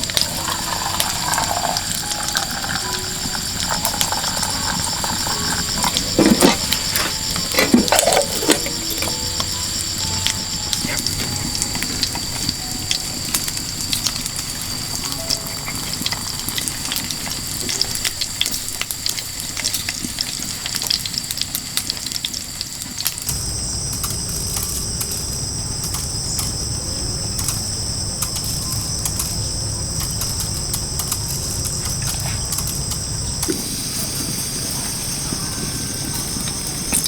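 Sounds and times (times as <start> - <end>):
food sizzling in a pan: 0.0 - 37.0
insects shrilling: 0.0 - 37.0
low rumble: 23.3 - 37.0.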